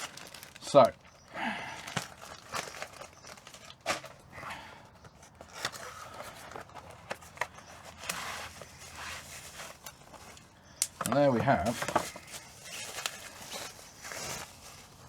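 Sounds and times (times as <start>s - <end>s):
packaging rustling and crinkling: 0.0s - 15.0s.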